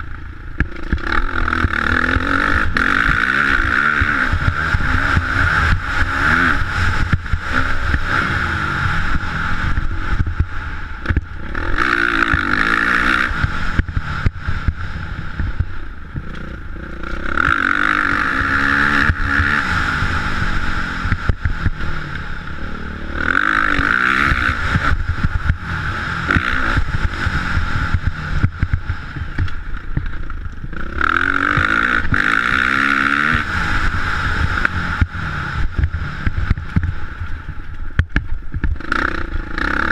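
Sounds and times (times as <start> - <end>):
low rumble with knocks: 0.0 - 8.2, 9.0 - 12.8, 13.4 - 17.4, 21.0 - 22.3, 26.3 - 30.9, 34.3 - 38.8
motocross bike engine revving: 0.0 - 39.9.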